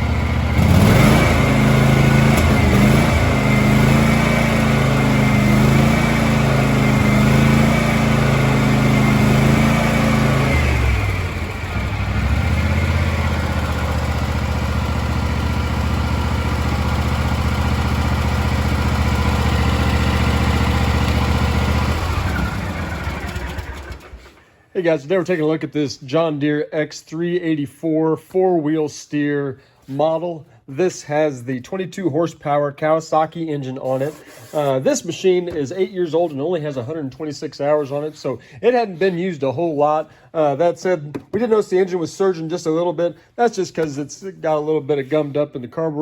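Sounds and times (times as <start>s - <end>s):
lawn tractor engine running: 0.0s - 24.4s.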